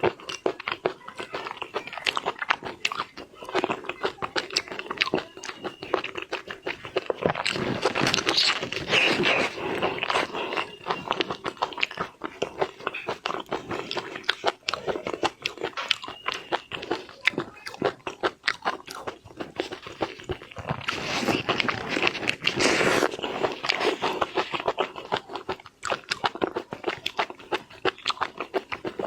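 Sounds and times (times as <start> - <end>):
wet biting and chewing: 0.0 - 29.0.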